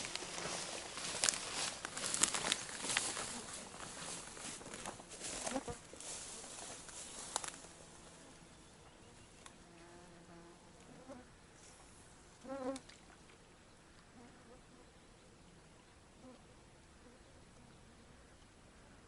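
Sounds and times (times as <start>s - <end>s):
rustling: 0.0s - 8.2s
insect buzzing: 12.4s - 12.9s.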